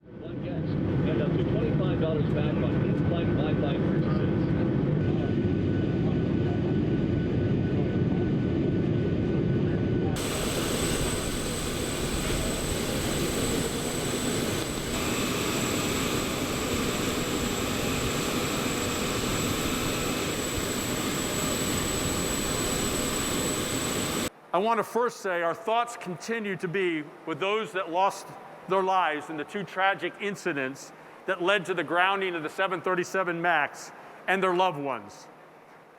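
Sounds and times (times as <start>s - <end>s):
jet airliner rumble: 0.0s - 24.3s
jet engine hiss and whine: 0.0s - 24.3s.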